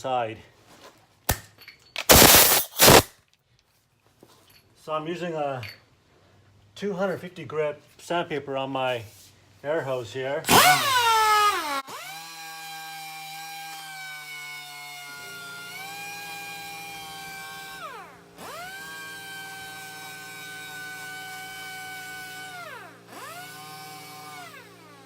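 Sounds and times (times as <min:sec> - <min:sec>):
air sander whining: 0:02.1 - 0:03.1, 0:10.5 - 0:13.1, 0:15.1 - 0:25.0.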